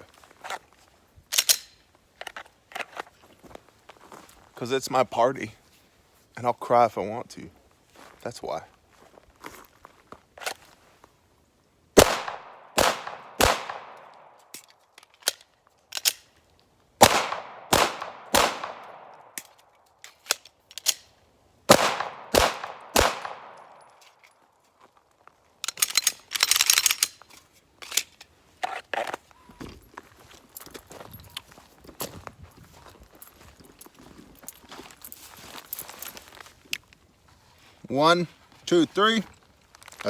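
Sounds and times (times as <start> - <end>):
pistol shots with echo: 12.0 - 14.2, 17.0 - 19.4, 21.7 - 23.8.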